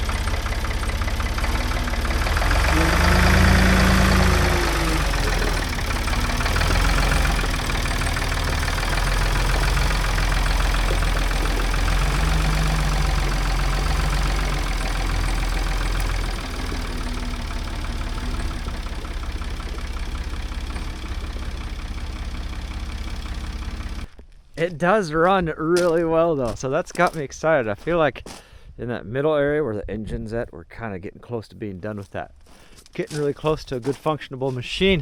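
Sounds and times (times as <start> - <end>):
diesel engine running: 0.0 - 27.9.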